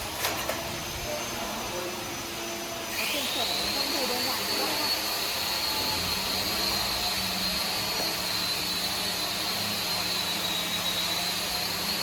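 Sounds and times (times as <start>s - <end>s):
woodworking machinery whining: 0.0s - 12.0s.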